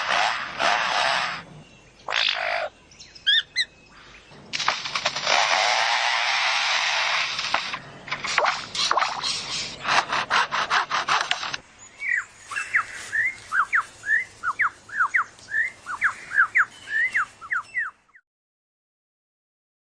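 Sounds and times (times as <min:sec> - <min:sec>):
bird mimicking a chainsaw: 0:00.0 - 0:02.7, 0:04.5 - 0:11.6
bird chirping and whistling: 0:03.0 - 0:03.7, 0:11.8 - 0:18.2.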